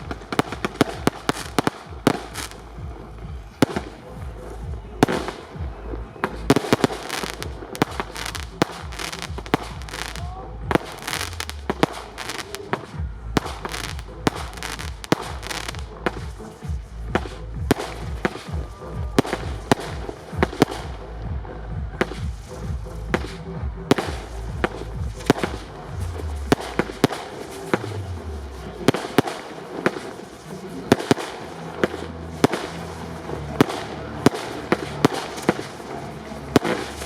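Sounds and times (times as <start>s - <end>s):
low rumble: 0.0s - 28.9s
fireworks bangs and cracks: 0.0s - 37.0s.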